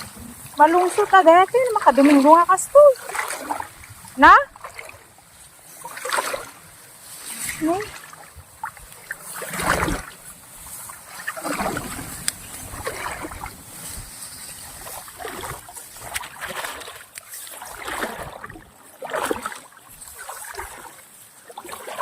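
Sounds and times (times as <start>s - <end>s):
wading through shallow water: 0.0s - 22.0s.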